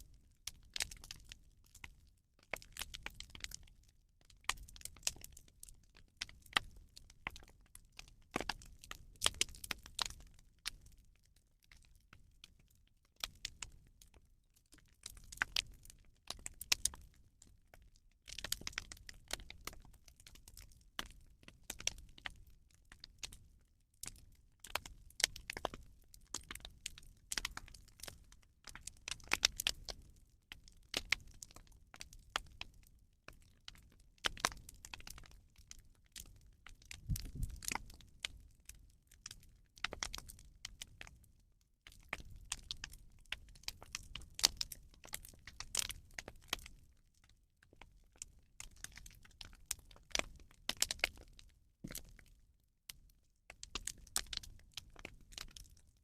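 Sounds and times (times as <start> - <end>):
bonfire crackling and popping: 8.4 - 11.0, 14.7 - 17.1, 17.7 - 22.5, 23.2 - 41.0, 41.9 - 46.8, 52.9 - 55.8.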